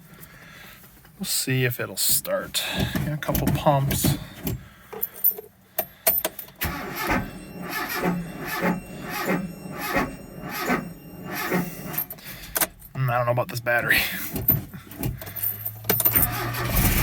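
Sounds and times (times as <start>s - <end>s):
starter cranking engine slowly: 16.3s - 17.0s.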